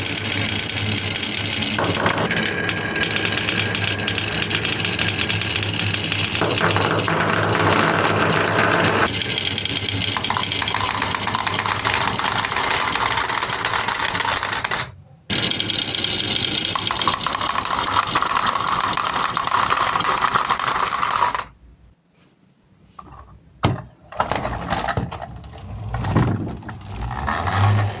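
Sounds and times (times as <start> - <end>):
marbles rattling down wooden run: 0.0 - 21.5.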